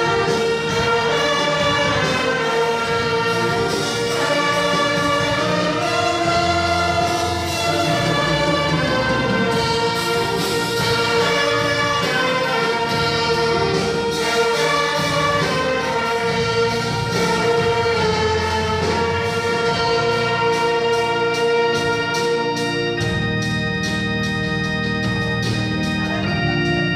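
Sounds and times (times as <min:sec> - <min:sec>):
brass instruments: 0:00.0 - 0:26.9
orchestra playing a hymn: 0:00.0 - 0:26.9.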